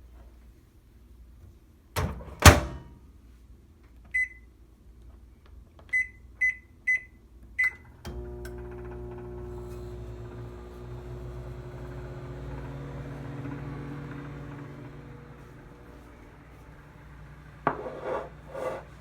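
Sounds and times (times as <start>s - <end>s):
microwave oven humming: 7.8s - 17.7s.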